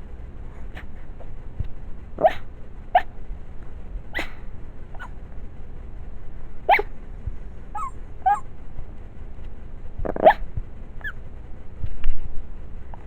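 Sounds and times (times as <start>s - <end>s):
dog yipping and whimpering in sleep: 2.2s - 3.1s, 4.1s - 4.4s, 6.7s - 6.9s, 7.8s - 8.5s, 10.0s - 10.4s.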